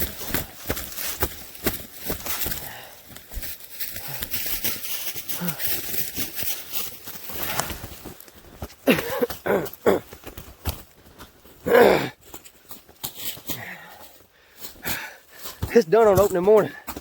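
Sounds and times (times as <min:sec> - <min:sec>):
rustling in dry leaves: 0:00.0 - 0:08.9.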